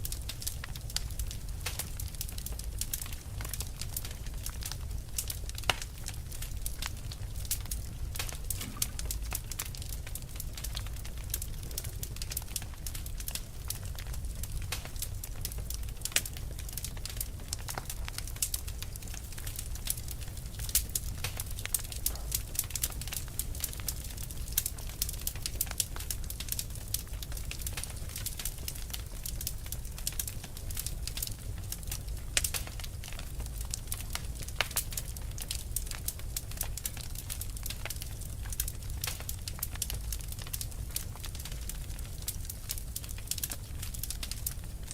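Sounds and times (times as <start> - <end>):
fire crackling: 0.0 - 44.9.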